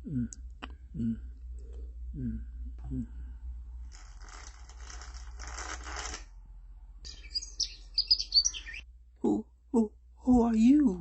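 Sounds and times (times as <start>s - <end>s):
birds chirping: 7.1s - 8.8s.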